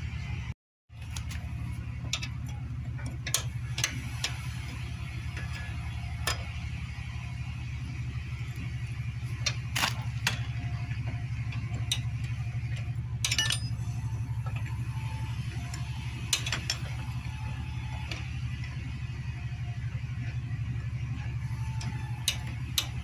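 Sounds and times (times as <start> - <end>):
low hum: 0.0 - 23.0
metal tool clinks: 13.2 - 13.8.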